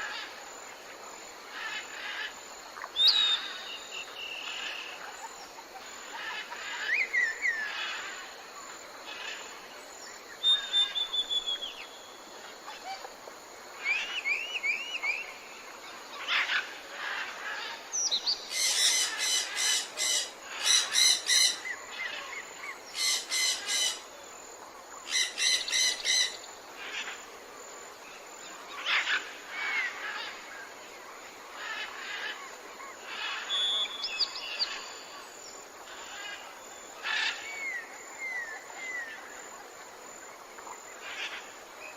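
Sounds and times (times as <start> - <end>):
background hiss: 0.0 - 41.9
birds chirping and trilling: 13.8 - 24.1, 25.0 - 27.2, 31.5 - 35.3.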